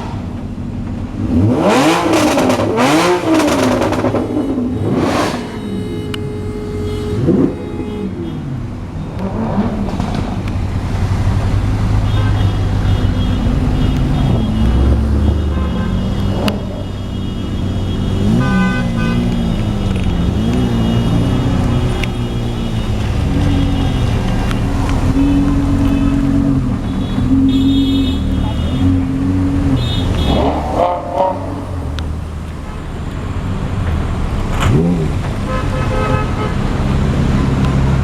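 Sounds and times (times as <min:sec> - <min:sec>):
car engines revving: 0:00.0 - 0:38.0
car horn toots: 0:01.4 - 0:09.7, 0:12.0 - 0:31.8, 0:34.7 - 0:36.8.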